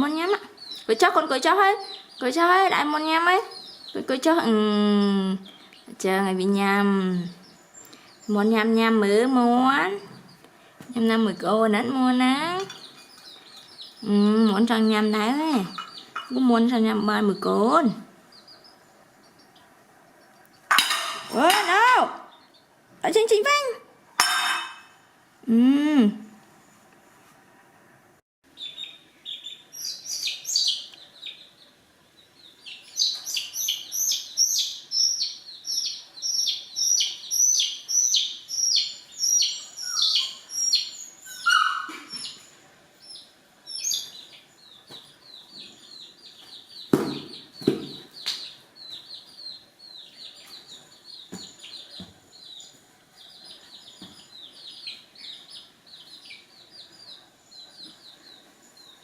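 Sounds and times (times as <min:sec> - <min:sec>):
bird chirping: 0:00.0 - 0:24.9, 0:28.4 - 0:59.0.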